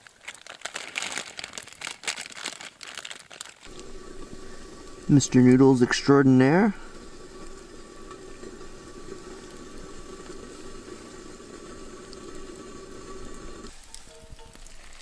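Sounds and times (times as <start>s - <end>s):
pot of water bubbling: 3.6s - 15.0s.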